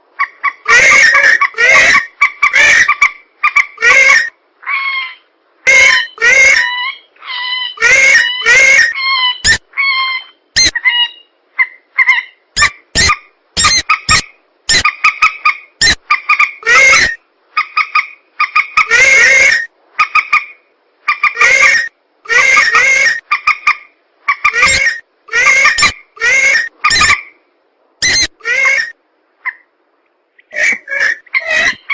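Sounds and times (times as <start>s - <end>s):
harsh squealing bird calls: 0.6s - 11.3s, 12.0s - 20.3s, 21.1s - 23.4s, 24.3s - 27.3s, 28.0s - 29.0s, 30.5s - 31.9s.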